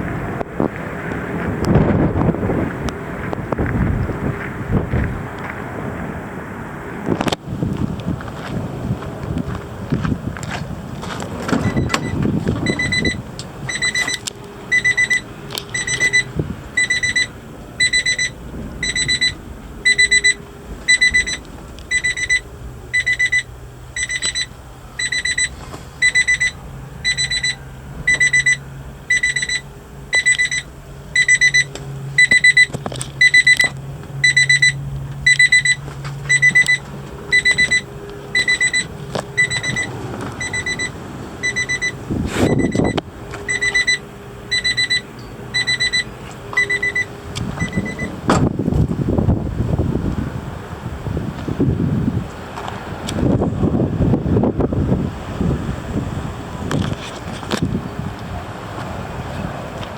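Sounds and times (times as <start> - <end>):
low steady hum: 8.8 - 51.0
vehicle warning beeper: 11.5 - 48.5.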